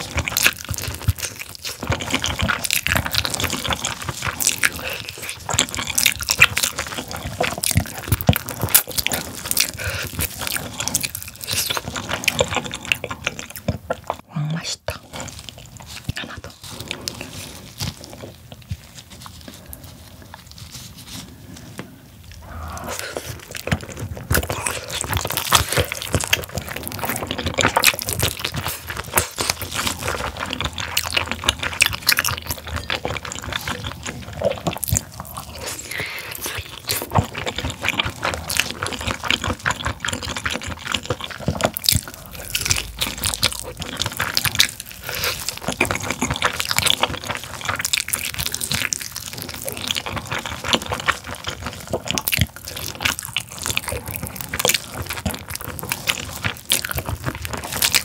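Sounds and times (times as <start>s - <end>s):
person chewing with mouth clicks: 0.0s - 58.0s.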